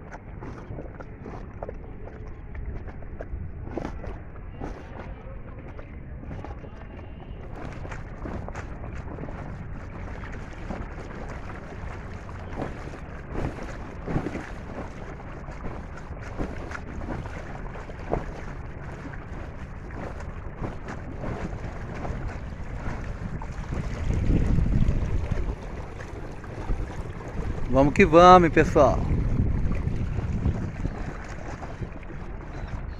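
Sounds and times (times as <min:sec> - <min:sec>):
waves slapping against boat hull: 0:00.0 - 0:32.9
wind rumbling on microphone: 0:00.0 - 0:32.9.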